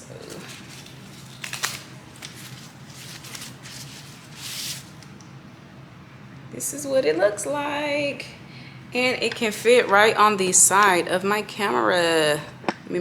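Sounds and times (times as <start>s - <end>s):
wrapping crinkling: 0.0s - 5.2s.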